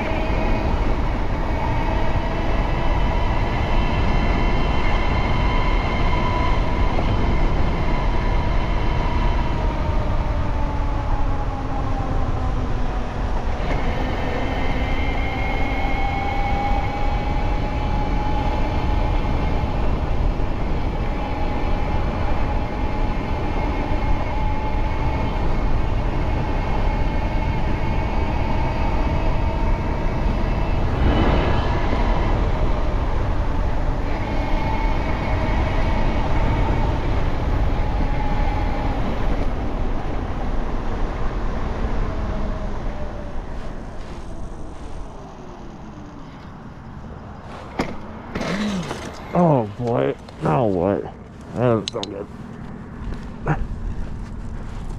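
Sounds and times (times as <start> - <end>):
electric bike motor whining: 0.0 - 12.4, 13.0 - 49.3
wind rush on microphone: 0.0 - 54.9.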